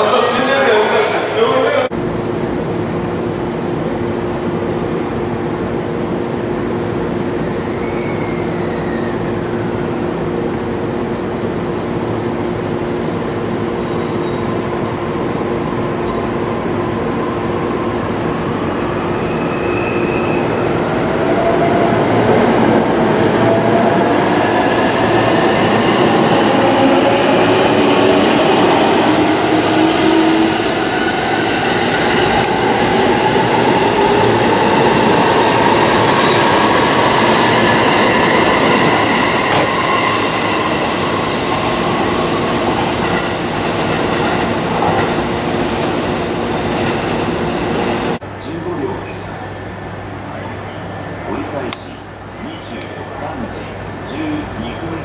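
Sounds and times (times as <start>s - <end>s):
wheels rumbling on rail: 9.5s - 48.2s.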